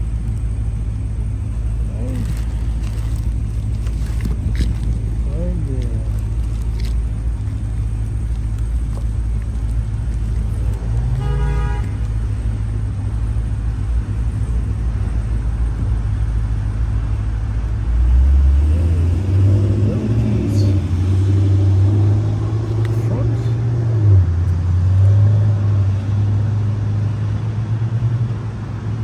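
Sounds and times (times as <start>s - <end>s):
road traffic rumble: 0.0s - 29.0s
car horn toot: 10.8s - 12.9s
vehicle passing close by: 17.9s - 29.0s.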